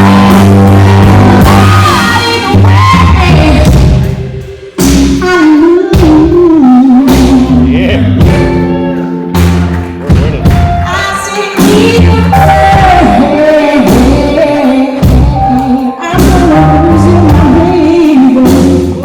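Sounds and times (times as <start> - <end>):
live rock band playing: 0.0 - 19.0
person singing: 10.1 - 19.0.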